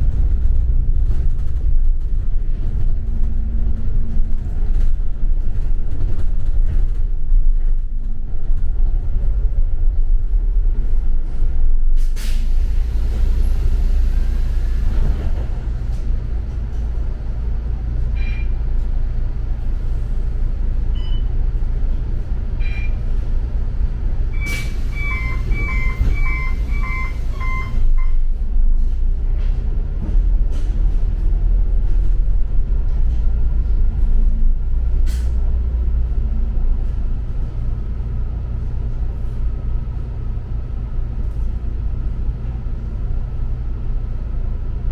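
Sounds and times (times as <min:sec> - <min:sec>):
bus engine and road rumble: 0:00.0 - 0:44.9
two-tone electronic beeps: 0:24.4 - 0:28.1.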